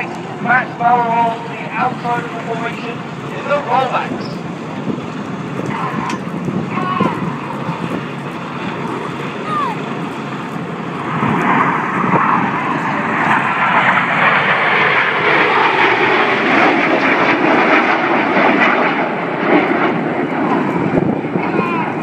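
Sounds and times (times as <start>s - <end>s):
jet aircraft flying past: 0.0s - 22.0s.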